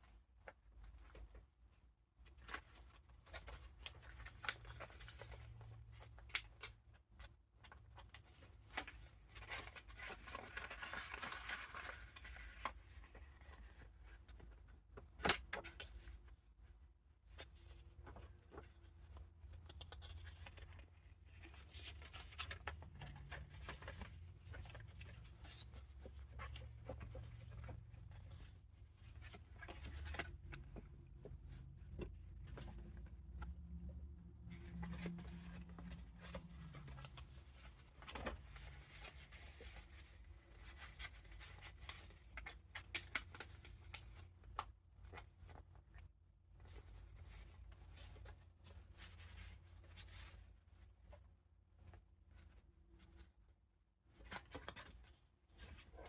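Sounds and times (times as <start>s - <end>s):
paper rustling and crinkling: 0.4s - 45.8s.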